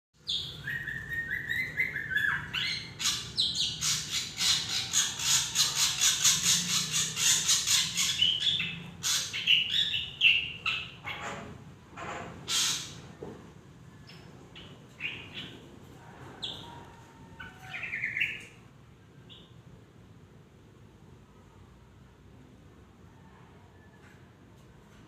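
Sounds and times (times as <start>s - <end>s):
bird singing varied song: 0.2s - 11.1s, 13.9s - 15.6s, 17.4s - 18.6s.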